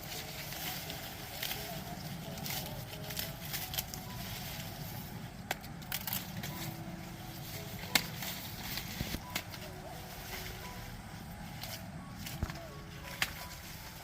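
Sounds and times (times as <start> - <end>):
corn leaves rustling and tearing: 0.0 - 14.0
crackles and snaps: 5.4 - 6.8.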